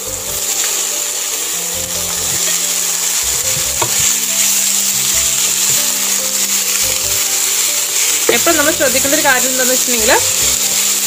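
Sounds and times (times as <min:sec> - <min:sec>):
chicken sizzling in hot oil: 0:00.0 - 0:11.0
spatula knocking against pan: 0:03.4 - 0:04.1.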